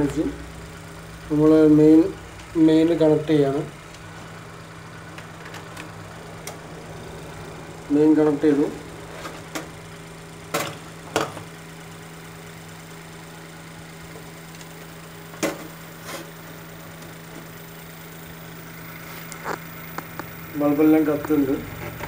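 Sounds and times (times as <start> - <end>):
inverter humming: 0.0 - 22.0.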